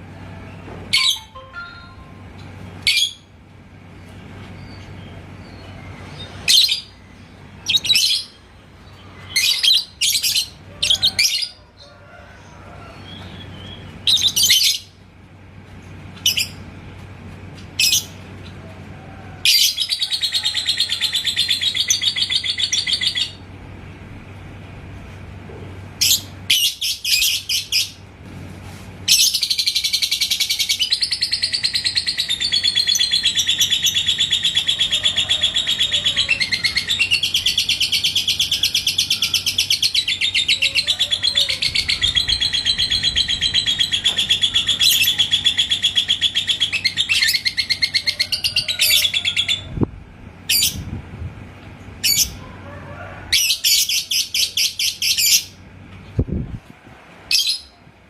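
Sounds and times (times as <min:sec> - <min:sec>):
lovebird chattering: 0:29.1 - 0:49.7.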